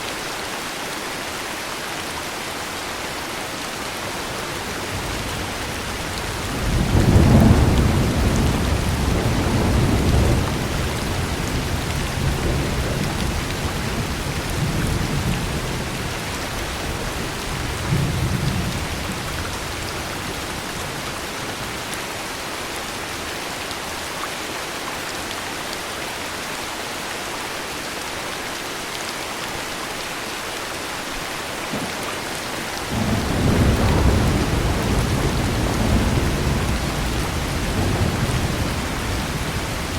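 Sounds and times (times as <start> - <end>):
heavy rain: 0.0 - 39.9
rolling thunder: 4.7 - 20.4, 32.8 - 39.9.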